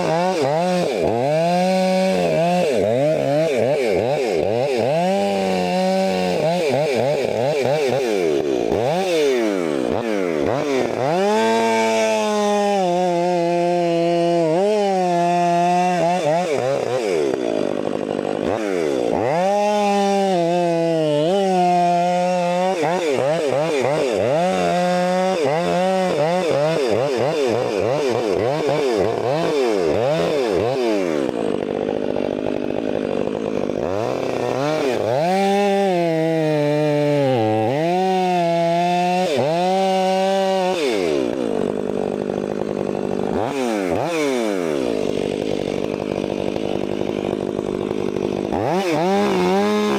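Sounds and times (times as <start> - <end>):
chainsaw cutting logs: 0.0 - 49.9.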